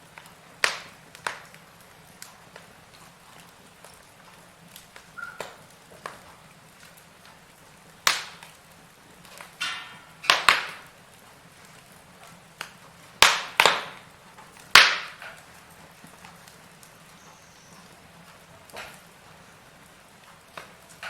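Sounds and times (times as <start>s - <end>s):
firewood crackling: 0.0s - 21.0s
sharp pops from fire: 0.0s - 21.0s.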